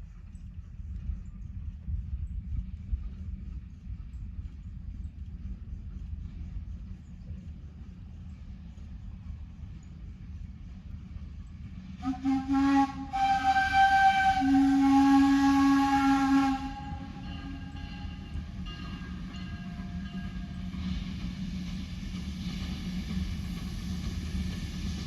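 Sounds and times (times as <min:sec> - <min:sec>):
low rumble: 0:00.0 - 0:12.1
steam whistle chord: 0:12.0 - 0:18.4.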